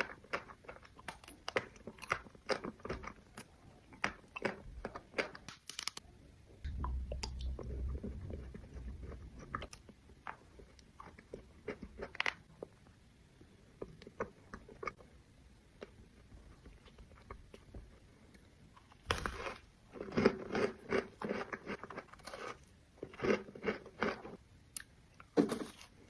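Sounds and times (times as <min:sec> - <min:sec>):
chewing and crunching sweet: 0:00.0 - 0:06.1, 0:06.9 - 0:26.0
low rumble: 0:06.6 - 0:10.3.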